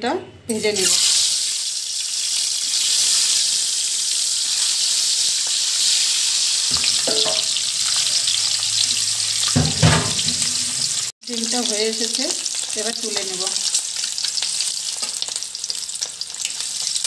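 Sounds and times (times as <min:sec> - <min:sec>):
eggs sizzling in hot oil: 0:00.8 - 0:17.0
spatula scraping and knocking pan: 0:06.7 - 0:08.1, 0:09.4 - 0:11.0.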